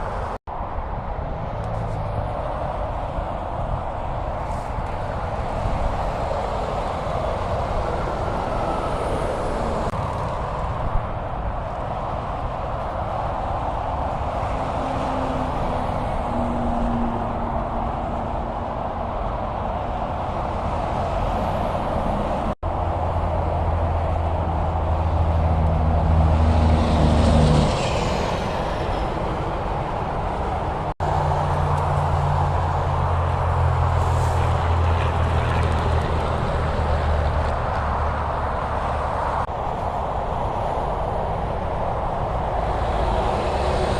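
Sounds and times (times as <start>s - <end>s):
tyre and road noise: 0.0s - 43.9s
truck diesel engines humming: 1.0s - 43.9s
vehicle passing close: 13.6s - 39.5s.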